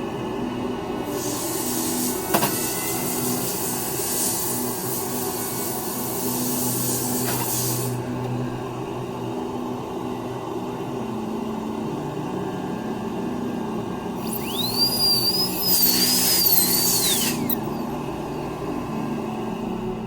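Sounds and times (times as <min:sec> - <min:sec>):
grinding hiss: 0:01.1 - 0:08.0, 0:14.2 - 0:18.0
rotary handpiece whining: 0:14.2 - 0:18.0.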